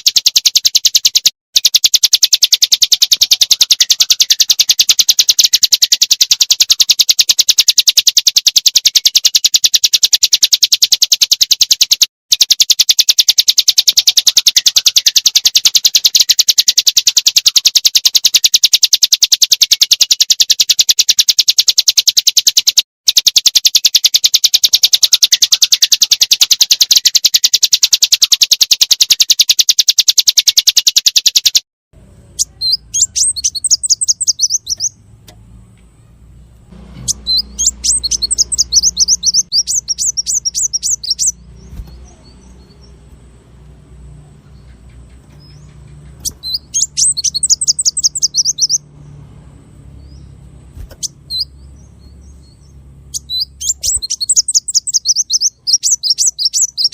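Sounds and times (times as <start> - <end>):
songbird trilling and chirping: 0.0 - 56.9
low hum: 32.0 - 55.1.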